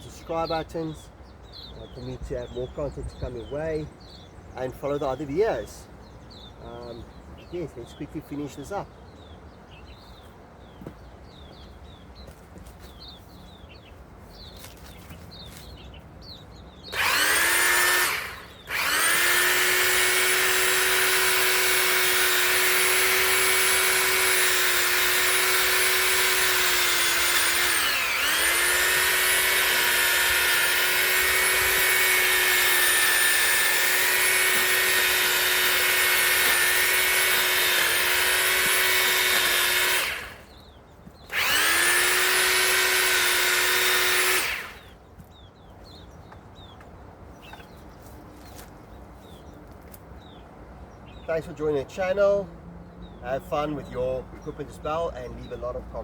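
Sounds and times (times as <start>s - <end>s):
bird chirps: 0.0s - 17.3s, 40.4s - 41.4s, 44.8s - 56.0s
electric pole saw motor whining: 16.9s - 40.6s, 41.3s - 45.0s.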